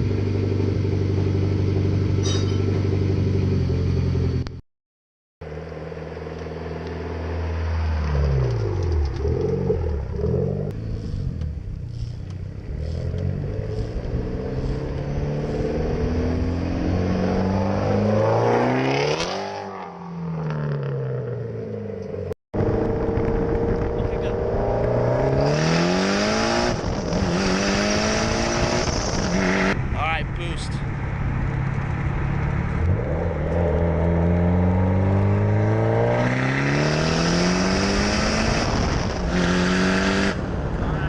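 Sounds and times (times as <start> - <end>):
car engine revving: 5.5 - 41.0.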